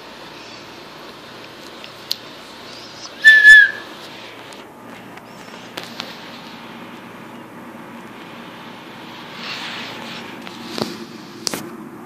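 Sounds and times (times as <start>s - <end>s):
pet bird whistled call: 3.0s - 3.9s.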